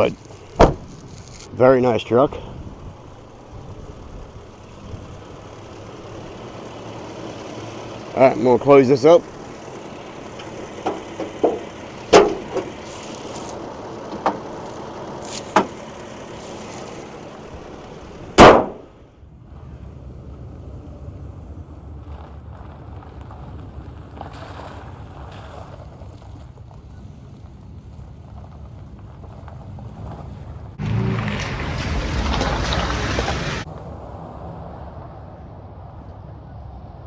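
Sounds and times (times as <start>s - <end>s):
truck engine idling: 0.0s - 19.2s, 30.8s - 33.7s
truck door slamming: 0.2s - 1.5s, 10.1s - 12.9s, 14.1s - 15.8s, 18.2s - 18.9s.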